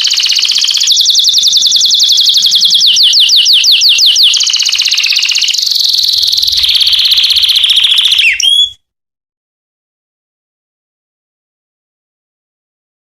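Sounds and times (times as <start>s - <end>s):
canary singing trills: 0.0s - 8.8s.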